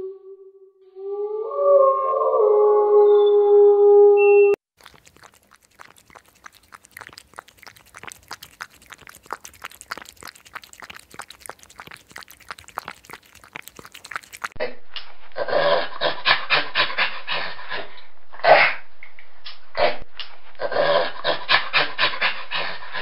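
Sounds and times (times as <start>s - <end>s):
hedgehog snuffling and sniffing: 4.8s - 14.6s
rough animal sound in bursts: 4.8s - 14.7s.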